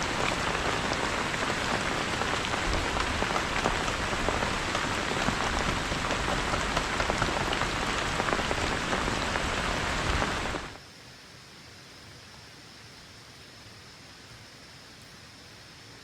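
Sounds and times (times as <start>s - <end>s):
heavy rain pattering: 0.0s - 10.8s
faint steady hiss: 0.0s - 16.0s.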